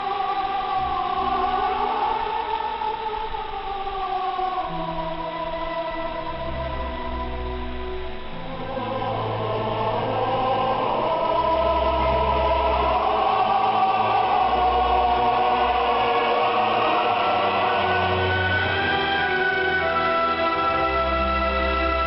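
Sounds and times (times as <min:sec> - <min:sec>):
choir singing: 0:00.0 - 0:22.0
orchestral accompaniment: 0:04.7 - 0:22.0.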